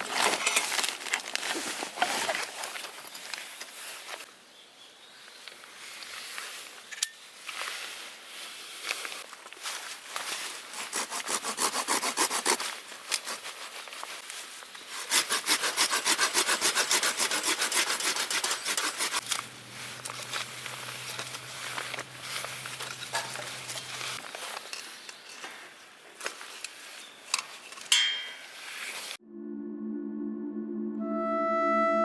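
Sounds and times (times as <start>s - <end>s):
hand saw cutting wood: 10.7s - 13.4s, 14.9s - 19.4s.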